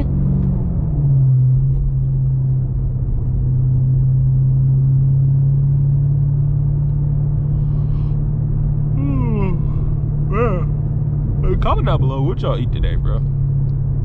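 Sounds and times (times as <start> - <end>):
car engine low drone: 0.0 - 14.0.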